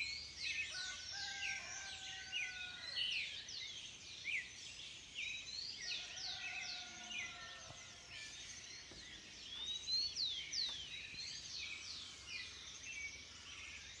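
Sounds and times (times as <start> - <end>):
birds singing and calling: 0.0 - 14.0.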